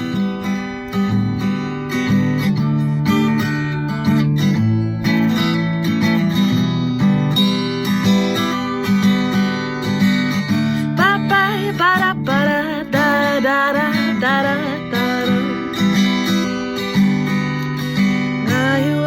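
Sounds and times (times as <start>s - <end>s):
acoustic guitar strumming: 0.0s - 19.0s
woman singing: 10.8s - 16.1s, 18.2s - 19.0s.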